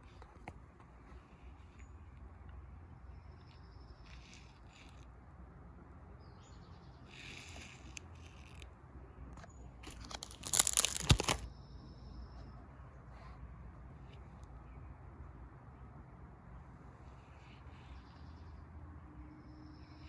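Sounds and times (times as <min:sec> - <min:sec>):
page turning rustle: 0:09.8 - 0:11.5.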